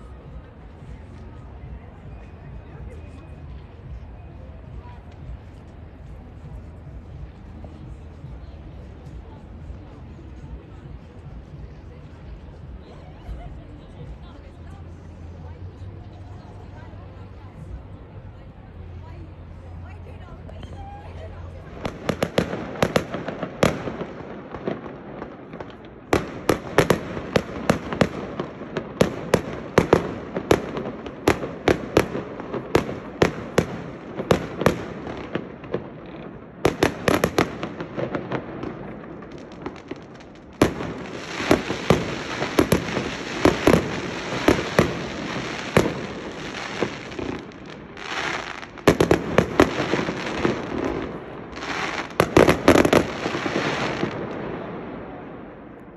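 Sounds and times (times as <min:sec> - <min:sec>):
fireworks bangs and pops: 0:21.6 - 0:55.0.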